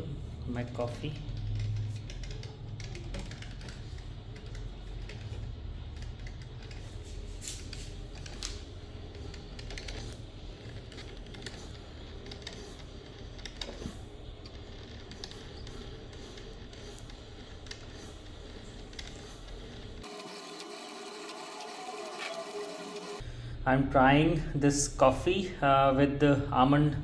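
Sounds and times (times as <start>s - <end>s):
coffee maker humming: 19.8s - 23.2s.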